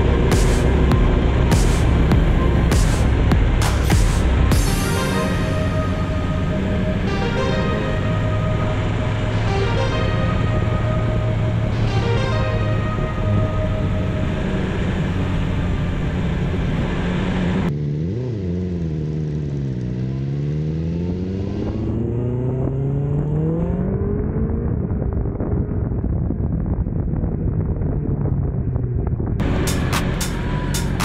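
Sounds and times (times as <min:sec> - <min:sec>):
motorcycle engine accelerating: 0:00.0 - 0:31.0
road noise: 0:00.0 - 0:31.0
wind rush: 0:22.7 - 0:31.0.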